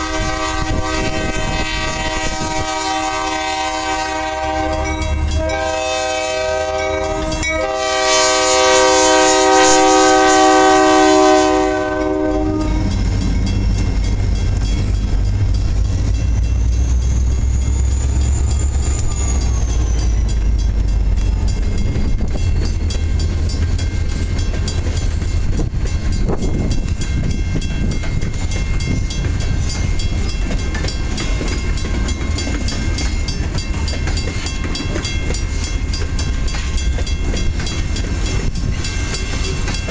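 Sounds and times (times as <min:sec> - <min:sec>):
locomotive air horn: 0:00.0 - 0:13.0
freight train rumbling past: 0:00.0 - 0:39.9.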